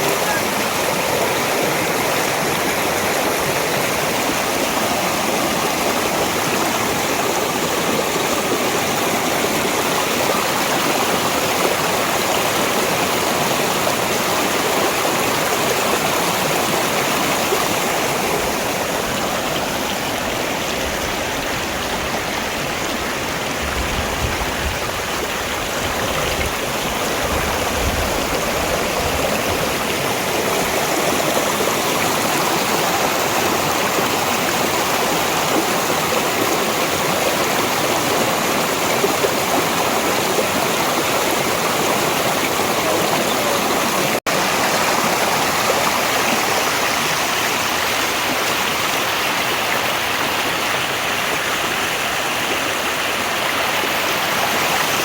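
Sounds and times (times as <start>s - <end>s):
stream rushing water: 0.0s - 55.0s.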